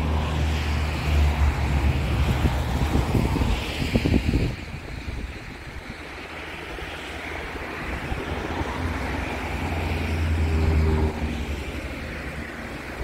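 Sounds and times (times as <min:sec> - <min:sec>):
low engine hum: 0:00.0 - 0:13.0
train rumbling: 0:06.0 - 0:13.0.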